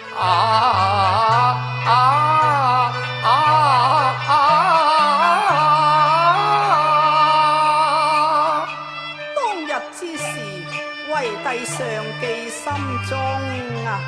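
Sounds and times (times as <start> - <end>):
held low bass notes: 0.0 - 9.0
opera singing with vibrato: 0.0 - 14.0.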